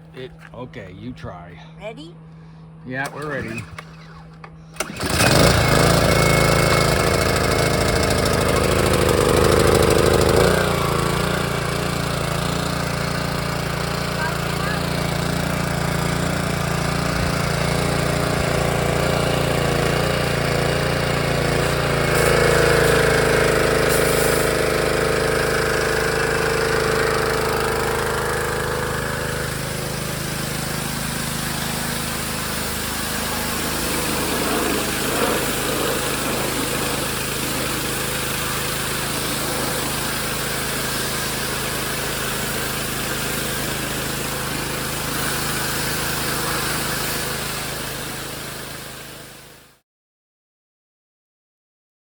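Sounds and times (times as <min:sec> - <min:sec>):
higher engine tone: 0:00.0 - 0:48.7
small petrol engine running: 0:03.0 - 0:49.8.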